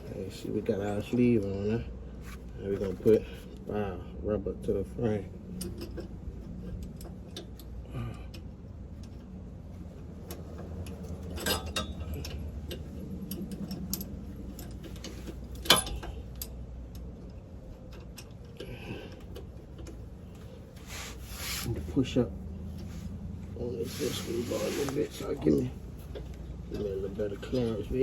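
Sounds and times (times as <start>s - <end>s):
steady low hum: 0.0s - 28.0s
metal hardware clicking: 10.3s - 20.4s.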